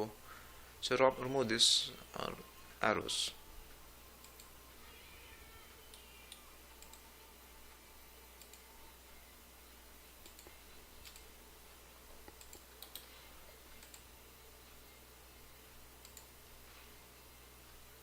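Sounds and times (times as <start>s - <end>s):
low steady hum: 0.0s - 18.0s
faint computer control clicks: 10.2s - 11.3s.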